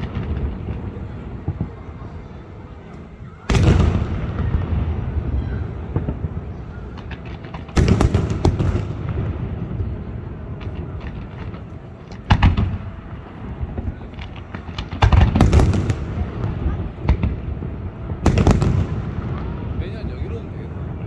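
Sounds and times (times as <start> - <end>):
fireworks booming: 0.0 - 21.0
fireworks crackling: 0.0 - 21.0.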